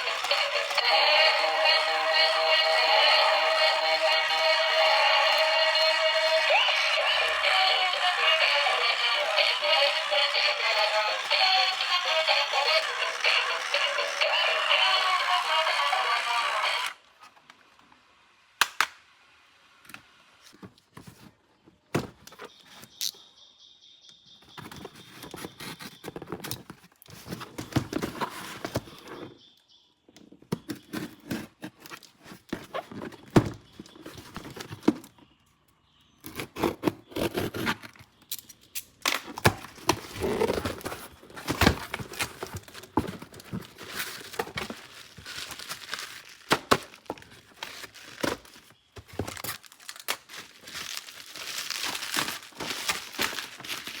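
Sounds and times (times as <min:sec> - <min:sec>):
plastic and cardboard crinkling: 0:00.0 - 0:16.9, 0:24.5 - 0:29.3, 0:39.1 - 0:54.0.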